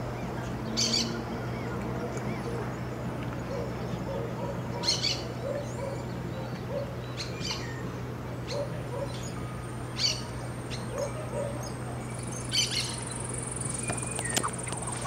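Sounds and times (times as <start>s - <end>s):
sharp high bird calls: 10.0s - 15.0s
soft low bird call notes: 12.4s - 15.0s.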